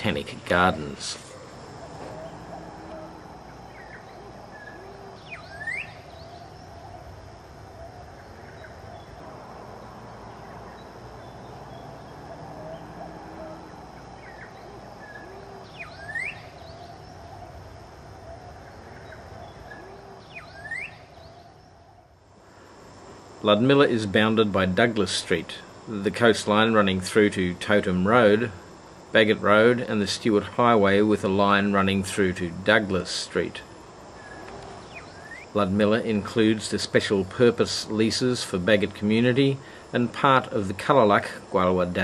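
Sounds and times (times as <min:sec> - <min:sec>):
birds calling: 0:00.0 - 0:42.0
outdoor background hiss and hum: 0:00.0 - 0:42.0
sharp sweeping whistled call: 0:03.7 - 0:06.5, 0:14.2 - 0:17.0, 0:19.4 - 0:21.5, 0:34.2 - 0:35.6.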